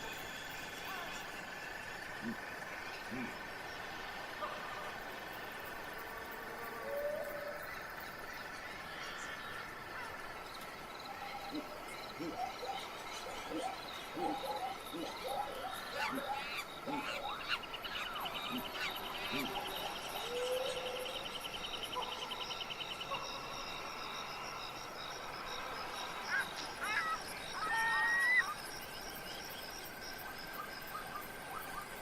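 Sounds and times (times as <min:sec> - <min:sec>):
insects droning: 0:00.0 - 0:32.0
loud whistled bird calls: 0:06.8 - 0:32.0
short chirping calls: 0:07.2 - 0:32.0.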